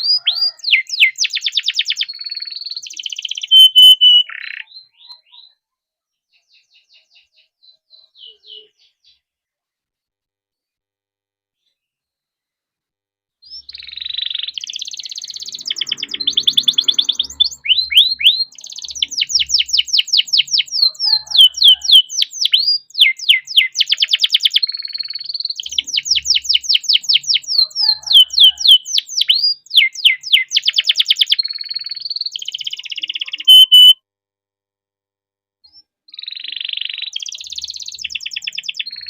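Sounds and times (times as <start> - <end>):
canary singing: 0.0 - 5.6, 6.3 - 9.2, 13.4 - 34.0, 36.1 - 39.0.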